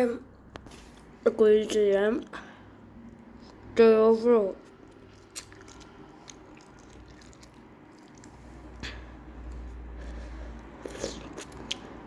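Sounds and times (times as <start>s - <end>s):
quiet chewing: 4.6s - 12.0s.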